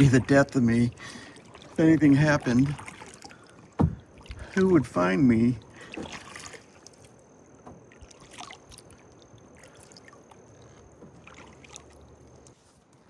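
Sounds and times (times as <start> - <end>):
paddle splashes and drips: 0.0 - 13.0
small knocks: 3.7 - 4.4.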